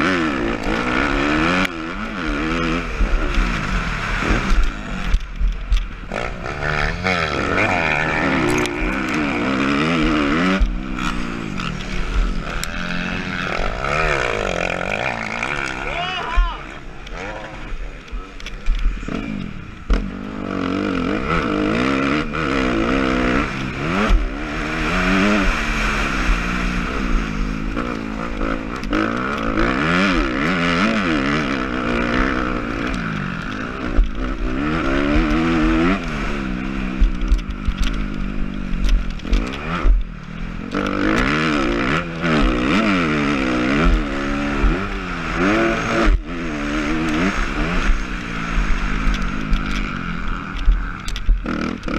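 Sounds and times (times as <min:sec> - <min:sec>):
motocross engine revving: 0:00.0 - 0:51.9.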